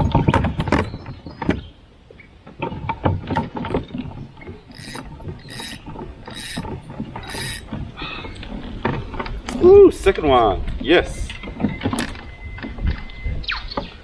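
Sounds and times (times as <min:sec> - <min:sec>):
fishing reel cranking: 0:04.7 - 0:07.7
short hissing bursts: 0:04.8 - 0:07.6.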